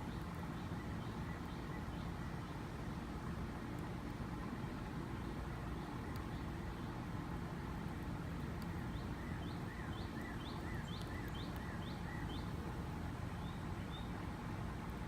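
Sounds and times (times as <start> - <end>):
small bird chirping: 8.7 - 12.6.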